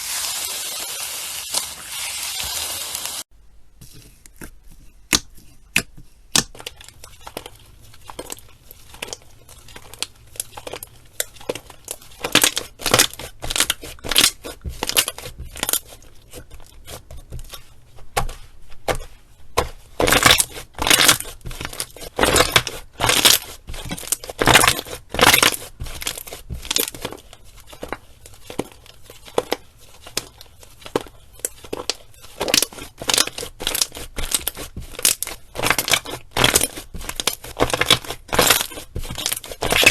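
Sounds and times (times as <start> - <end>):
slime crackling and popping: 29.3 - 39.9.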